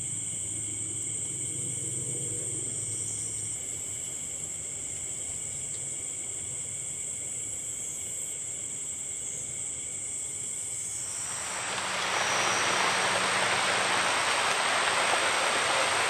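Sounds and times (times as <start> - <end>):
insects trilling: 10.7 - 16.0
rain hissing on leaves: 11.0 - 16.0.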